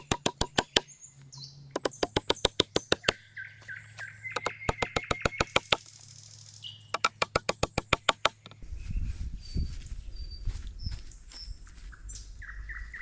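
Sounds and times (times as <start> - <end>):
rapid sharp knocks: 0.0 - 0.9, 1.8 - 3.2, 4.4 - 5.8, 7.0 - 8.6
bird chirps: 0.0 - 7.3.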